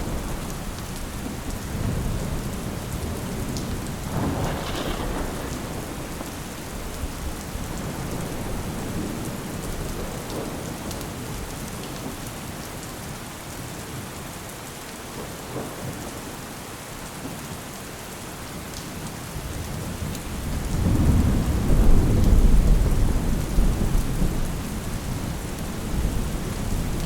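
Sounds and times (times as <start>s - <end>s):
thunder rumbling: 0.0s - 10.8s, 20.3s - 27.0s
steady rain: 0.0s - 27.0s.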